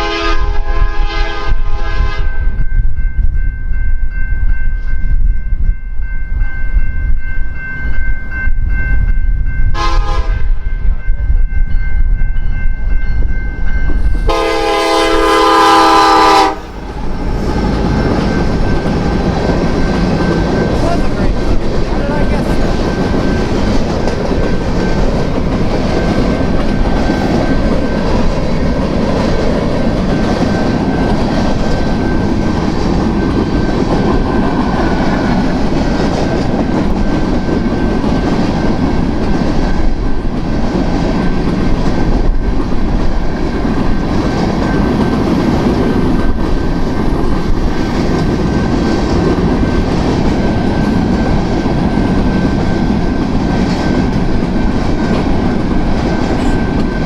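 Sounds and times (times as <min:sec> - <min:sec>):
train cars rumbling past: 0:00.0 - 0:57.0
wheels clacking over rail joints: 0:16.7 - 0:57.0.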